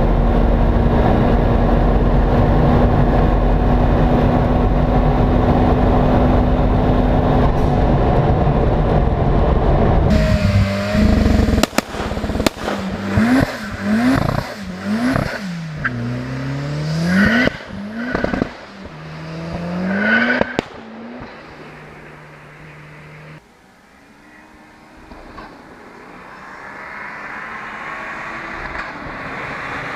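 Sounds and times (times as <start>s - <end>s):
exhaust bangs: 0.0s - 23.4s
car engine revving: 0.0s - 29.9s.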